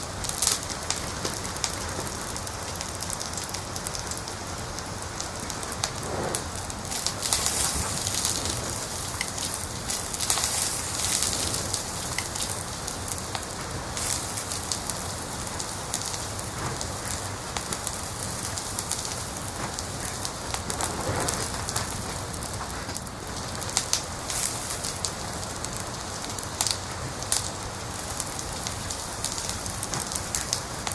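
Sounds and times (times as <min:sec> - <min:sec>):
wood fire crackling and popping: 0:00.0 - 0:30.9.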